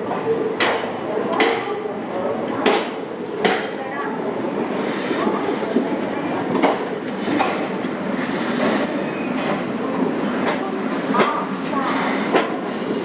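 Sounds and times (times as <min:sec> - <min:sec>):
train coach rumbling on rails: 0:00.0 - 0:13.0
wheels clacking over rail joints: 0:04.7 - 0:13.0.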